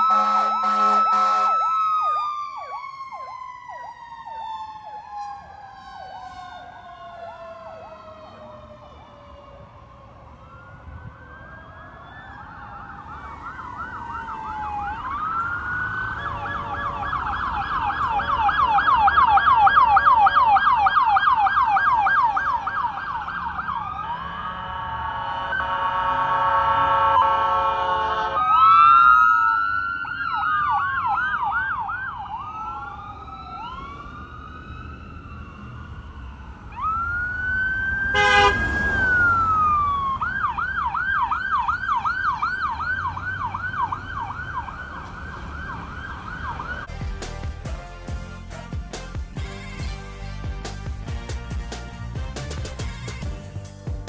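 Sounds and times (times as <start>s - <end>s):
electronic siren yelping: 0.0s - 5.6s, 11.4s - 27.3s, 36.6s - 46.9s
siren wailing: 0.0s - 47.0s.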